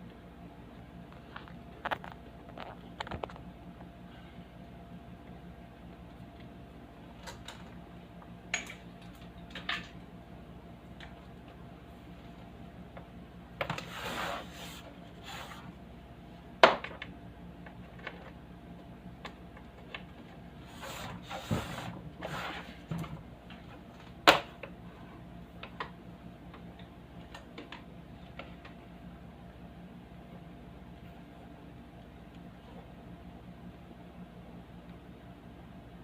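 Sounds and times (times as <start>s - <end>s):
faint steady hum: 0.0s - 36.0s
rubbing and scraping: 13.8s - 15.7s.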